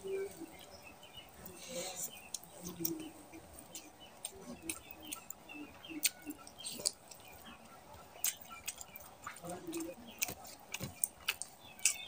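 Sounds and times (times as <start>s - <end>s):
close-up chewing: 0.0s - 12.0s
lip smacks: 3.7s - 12.0s.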